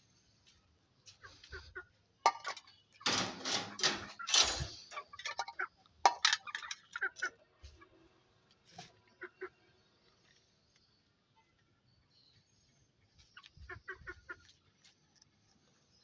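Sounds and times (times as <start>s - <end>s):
hard objects clinking and knocking: 2.3s - 7.0s.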